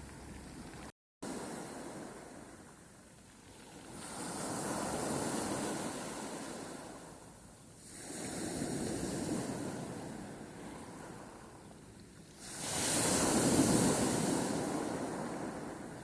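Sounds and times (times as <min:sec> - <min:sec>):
sea waves surging and washing: 0:00.0 - 0:16.0.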